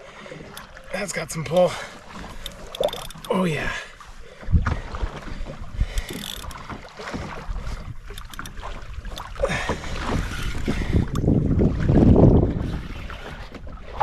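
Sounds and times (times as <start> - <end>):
water sloshing around kayak: 0.0 - 14.0
knocks and clicks: 2.2 - 3.4, 6.0 - 6.7, 8.1 - 9.4
wind on microphone: 7.2 - 14.0.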